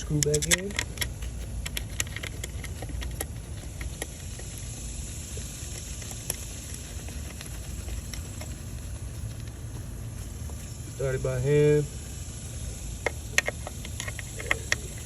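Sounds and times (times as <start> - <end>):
small metal parts clicking: 0.0 - 4.5
cicadas droning: 0.0 - 15.0.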